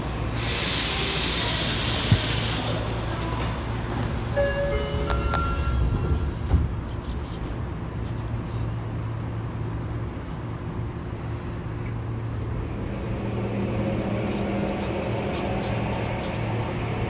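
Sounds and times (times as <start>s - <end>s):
train rumbling in tunnel: 0.0s - 17.0s
higher steady tone: 4.0s - 6.1s.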